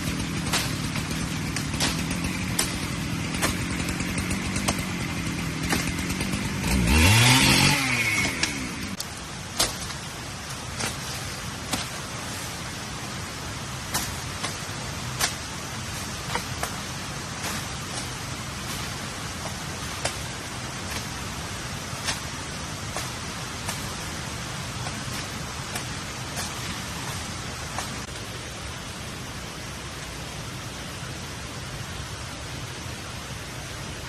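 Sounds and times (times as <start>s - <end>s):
small engine running: 0.0s - 9.0s.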